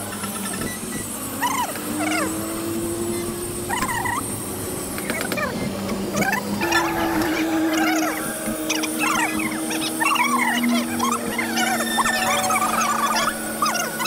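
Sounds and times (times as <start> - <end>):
steady low hum: 0.0 - 14.0
dog whining: 3.2 - 4.2, 6.2 - 14.0.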